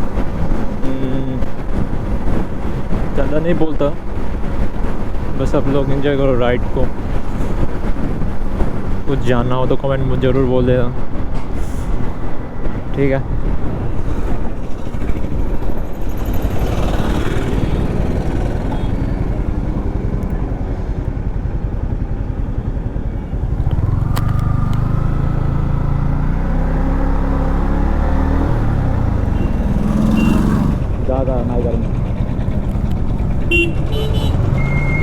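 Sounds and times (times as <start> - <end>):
wind noise: 0.0 - 35.0
motorcycle engine at speed: 14.4 - 35.0.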